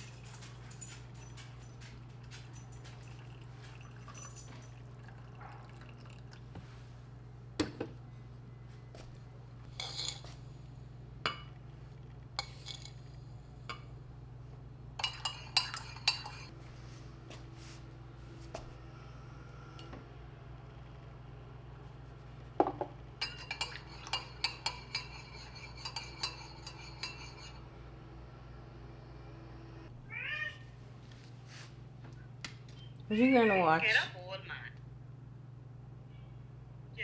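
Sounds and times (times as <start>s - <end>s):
dishes and cutlery clinking: 0.0s - 6.2s, 15.0s - 16.6s, 22.6s - 27.6s
steady low hum: 0.0s - 37.0s.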